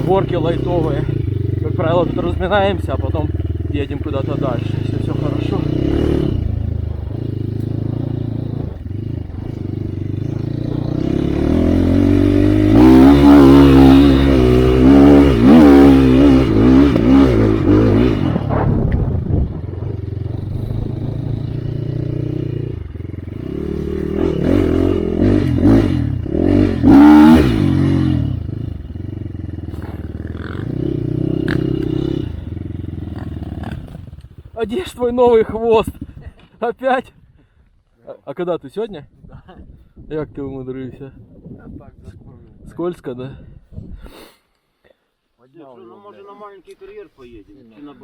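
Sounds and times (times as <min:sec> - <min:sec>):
dirt bike engine revving: 0:00.0 - 0:34.8.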